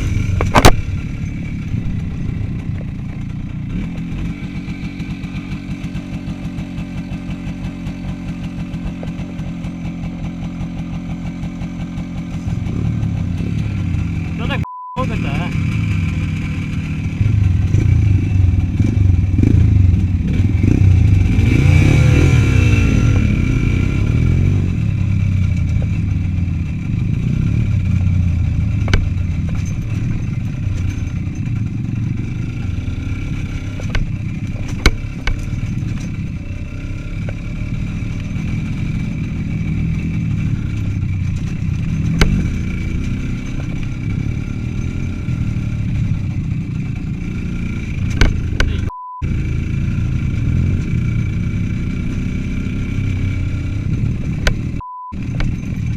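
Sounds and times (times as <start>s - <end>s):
motorcycle engine revving: 0.0s - 55.9s
sharp knocks and clatters: 28.0s - 48.8s, 54.3s - 55.9s.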